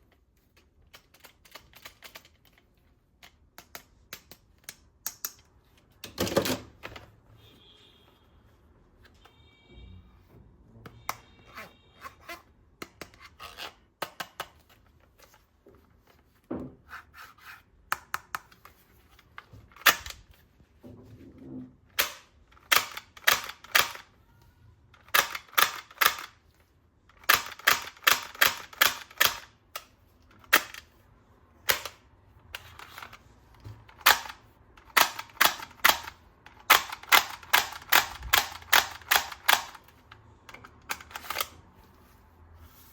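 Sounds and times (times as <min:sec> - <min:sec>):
toy guns clicking and snapping: 0:03.2 - 0:06.7, 0:19.7 - 0:20.2, 0:21.9 - 0:24.1, 0:25.0 - 0:26.4, 0:27.1 - 0:31.0, 0:31.6 - 0:41.6.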